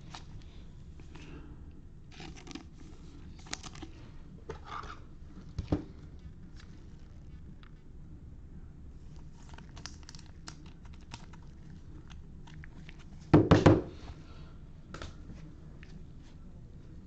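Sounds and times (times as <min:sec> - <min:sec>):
card wrappers crinkling and rustling: 0:02.1 - 0:04.0, 0:09.1 - 0:13.3.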